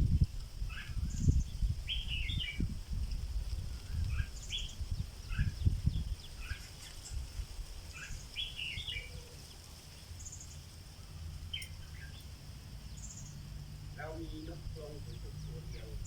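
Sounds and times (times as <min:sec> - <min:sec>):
low rumble: 0:00.0 - 0:04.2
bulbul singing warbled phrases: 0:00.7 - 0:02.7, 0:03.9 - 0:06.7, 0:08.0 - 0:09.6, 0:12.9 - 0:16.0.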